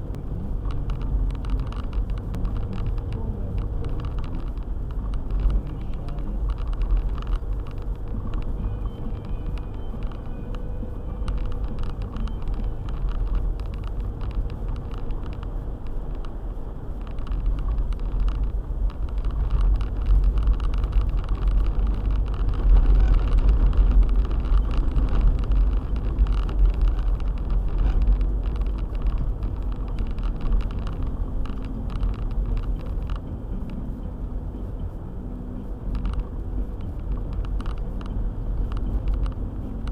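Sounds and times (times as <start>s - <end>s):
car driving on snowy road: 0.0s - 39.9s
small ticks: 0.6s - 34.1s, 35.6s - 39.9s.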